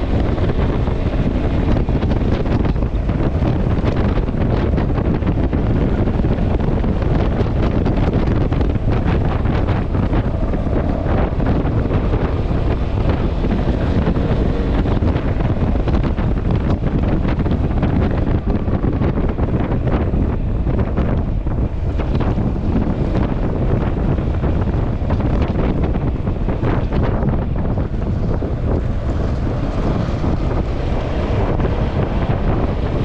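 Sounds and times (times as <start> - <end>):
scooter engine running: 0.0 - 20.0
road noise: 0.0 - 33.0
wind buffeting microphone: 0.0 - 33.0.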